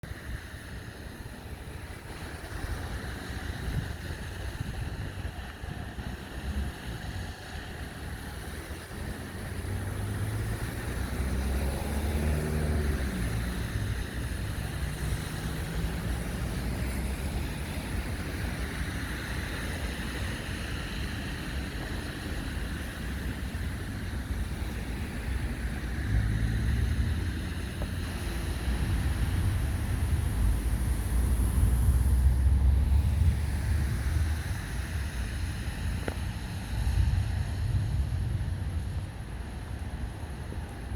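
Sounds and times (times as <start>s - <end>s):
rain: 0.0s - 40.9s
wind: 0.0s - 40.9s
vehicle engine passing: 8.2s - 17.2s.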